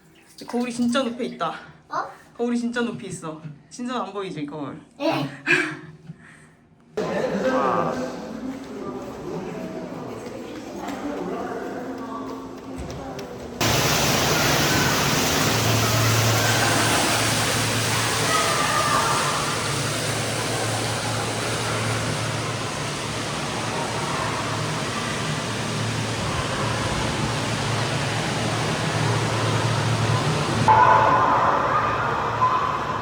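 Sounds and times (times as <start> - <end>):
water running from a tap: 13.6 - 30.7.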